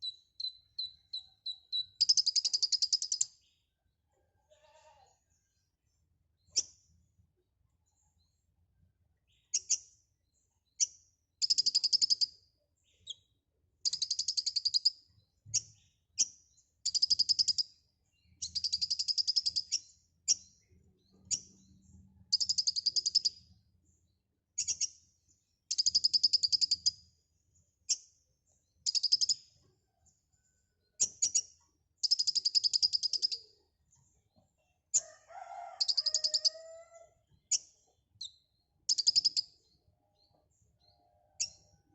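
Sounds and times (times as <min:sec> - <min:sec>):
bird trilling song: 0:00.0 - 0:03.6, 0:09.2 - 0:25.1, 0:25.7 - 0:27.1, 0:27.9 - 0:29.6, 0:30.8 - 0:35.1, 0:35.7 - 0:41.9
single bird chirps: 0:35.8 - 0:39.5.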